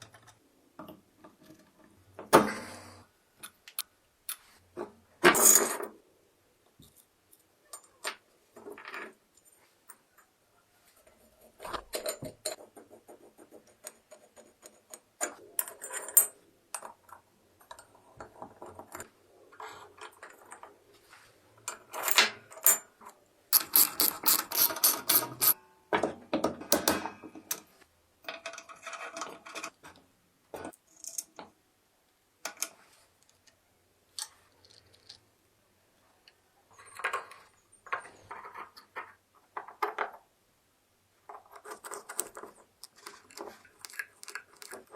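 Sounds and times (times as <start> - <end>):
ratchet clicking: 23.6 - 25.6.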